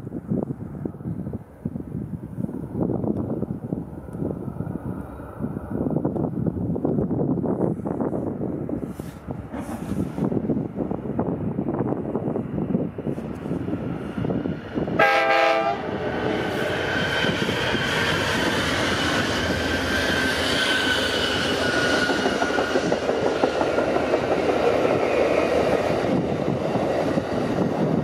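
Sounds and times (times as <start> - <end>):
train cars rumbling and clattering: 0.1 - 28.0
train air horn blast: 15.0 - 15.9.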